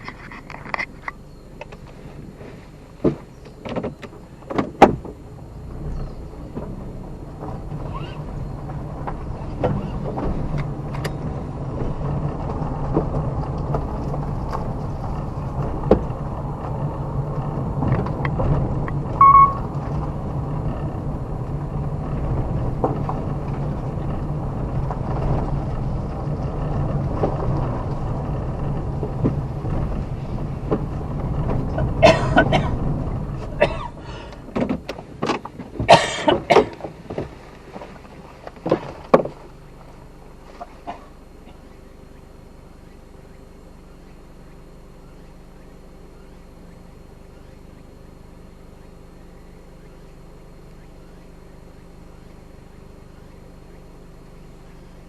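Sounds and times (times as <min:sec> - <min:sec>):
car engine hum: 0:00.0 - 0:55.0
light knocks and rattles: 0:06.4 - 0:39.9
short beep: 0:19.2 - 0:19.7.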